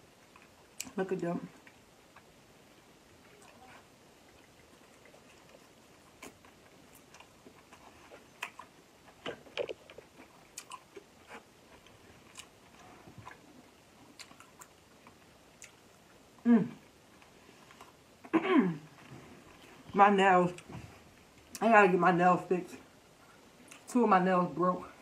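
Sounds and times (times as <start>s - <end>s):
chewing and wet mouth clicks: 4.2s - 11.1s, 14.2s - 15.8s.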